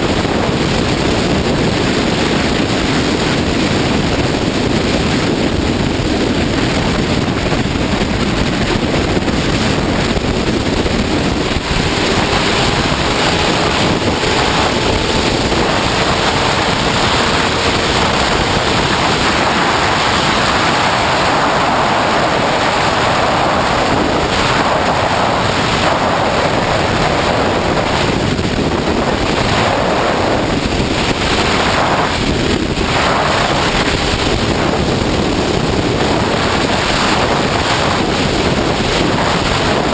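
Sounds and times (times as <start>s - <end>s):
wind rush on microphone: 0.0s - 39.9s
faint motorcycle engine: 6.8s - 28.2s.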